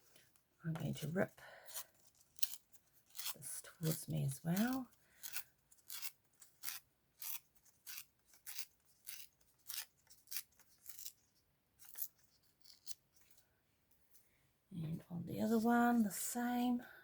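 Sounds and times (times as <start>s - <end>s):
paper tearing: 1.8s - 11.2s.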